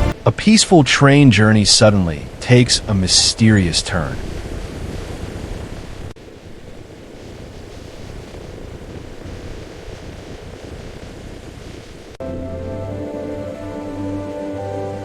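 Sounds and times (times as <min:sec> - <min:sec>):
steady rushing rumble: 0:00.0 - 0:15.0.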